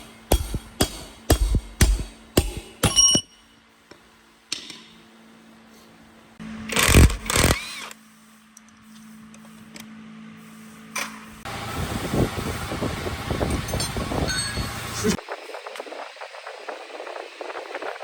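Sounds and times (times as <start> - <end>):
hammer striking metal: 0.0 - 3.6.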